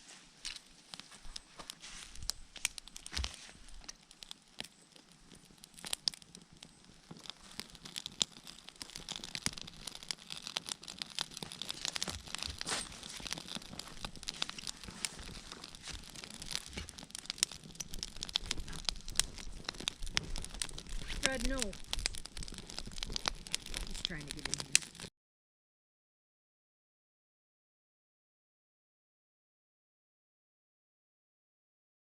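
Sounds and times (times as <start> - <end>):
campfire crackling and popping: 0.0 - 25.1.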